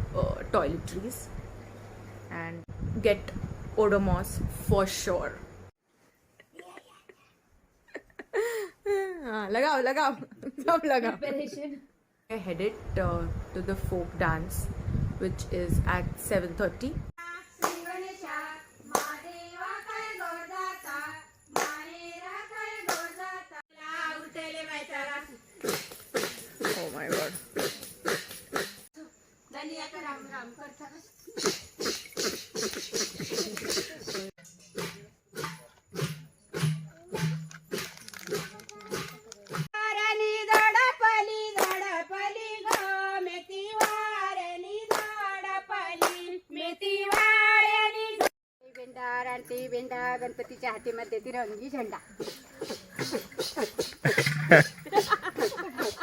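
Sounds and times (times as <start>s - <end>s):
sharp hand claps: 17.6s - 17.9s, 18.9s - 19.2s, 21.6s - 21.8s, 22.9s - 23.1s, 40.5s - 40.7s, 41.6s - 41.9s, 42.7s - 42.9s, 44.9s - 45.2s, 46.0s - 46.2s, 47.1s - 47.3s
sharp beat hits: 34.8s - 37.5s.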